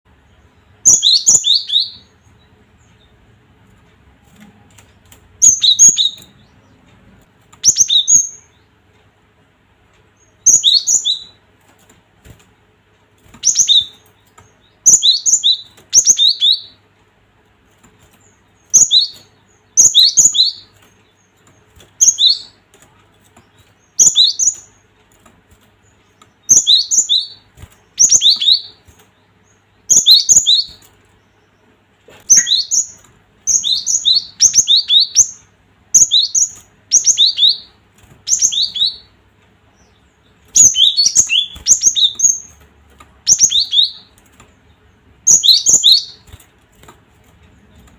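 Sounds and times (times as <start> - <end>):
bird calling in sharp notes: 5.4 - 6.7, 26.4 - 28.8, 32.3 - 39.2, 39.8 - 42.5, 43.2 - 44.2, 45.2 - 46.3.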